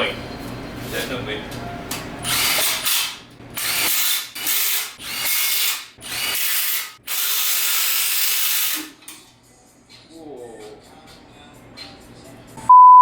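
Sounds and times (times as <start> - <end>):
power tool driving bolts: 2.2 - 9.1.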